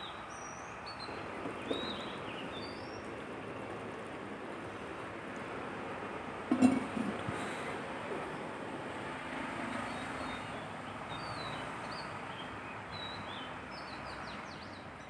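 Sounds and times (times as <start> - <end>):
small birds chirping: 0.0 - 3.9.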